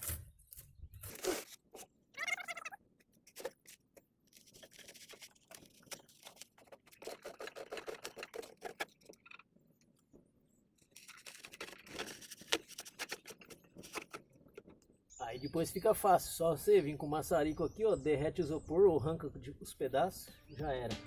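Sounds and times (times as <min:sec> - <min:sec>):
styrofoam scraping and rustling: 0:03.2 - 0:09.3, 0:10.8 - 0:14.4.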